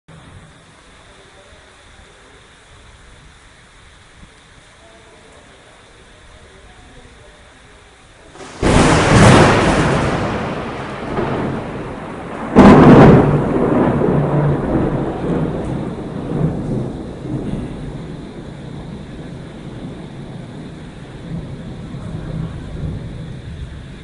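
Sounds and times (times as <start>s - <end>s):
thunderclaps rolling into rumbling: 8.4s - 24.0s.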